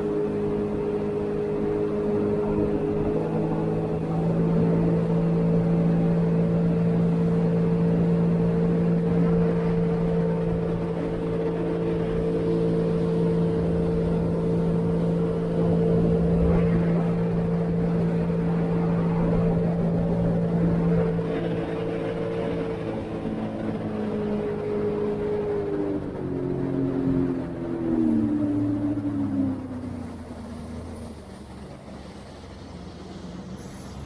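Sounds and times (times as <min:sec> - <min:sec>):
personal watercraft engine drone: 0:00.0 - 0:34.0.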